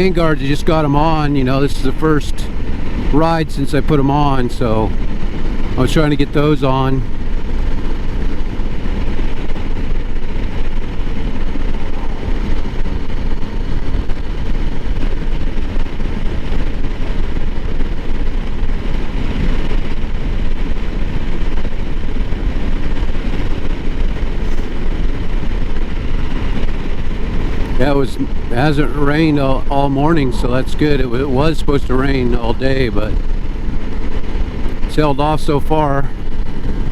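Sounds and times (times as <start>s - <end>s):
motorcycle engine cruising: 0.0s - 36.9s
wind noise on microphone: 0.0s - 36.9s.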